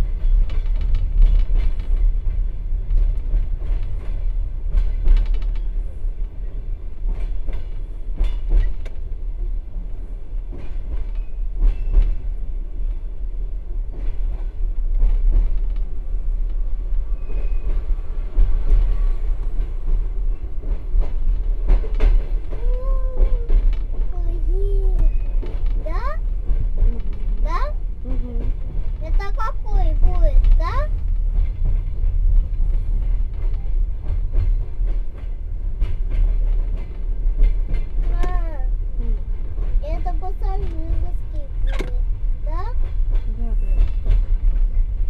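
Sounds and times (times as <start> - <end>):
train interior rumble: 0.0 - 45.0
wheels clicking over rail joints: 0.1 - 6.4, 13.9 - 45.0
wheel clicks over rail joints: 2.9 - 5.7.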